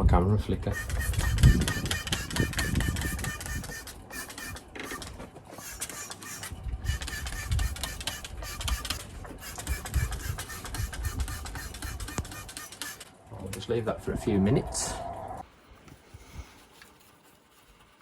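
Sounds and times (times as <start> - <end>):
spray bottle hissing: 0.8 - 13.0.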